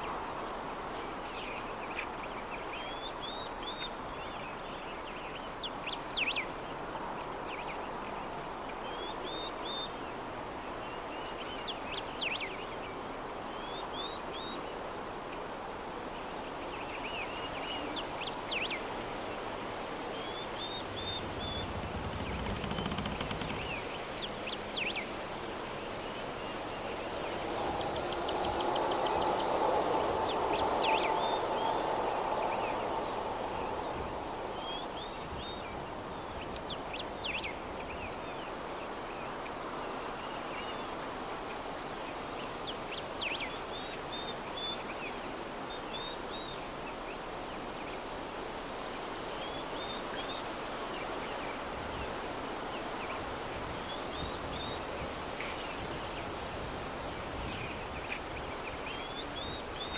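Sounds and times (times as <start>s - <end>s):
soft breeze: 0.0s - 59.9s
small birds chirping: 17.0s - 25.2s.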